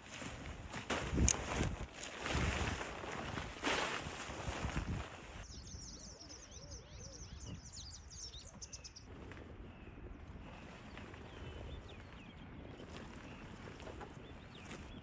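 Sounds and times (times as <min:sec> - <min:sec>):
low wind rumble: 0:00.3 - 0:15.0
small birds chirping: 0:03.1 - 0:15.0.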